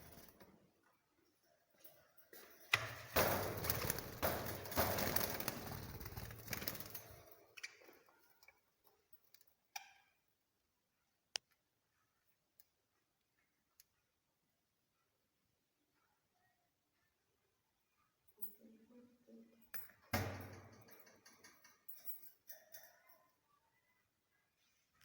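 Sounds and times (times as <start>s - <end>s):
birds fluttering in a cage: 0.0s - 0.6s, 1.9s - 8.4s.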